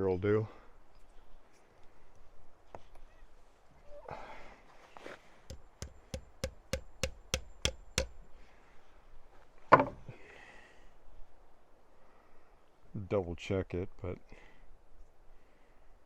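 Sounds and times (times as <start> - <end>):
dull thud: 5.5 - 8.1
hammer striking nail into wood: 5.5 - 8.2.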